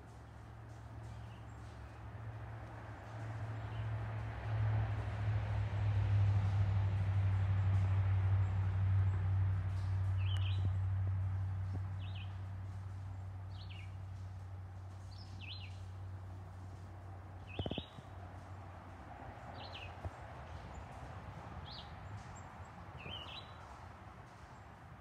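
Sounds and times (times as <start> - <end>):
bird chirping: 17.5 - 18.0, 23.0 - 23.6.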